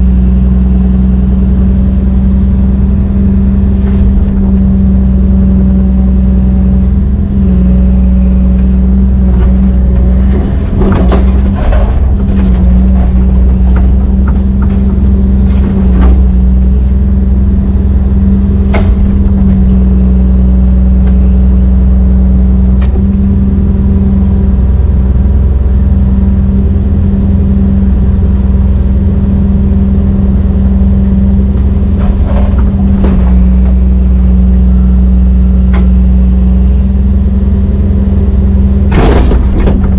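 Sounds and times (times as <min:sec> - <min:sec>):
excavator diesel engine running: 0:00.0 - 0:39.9
machine knocks: 0:18.7 - 0:19.5, 0:38.9 - 0:39.9.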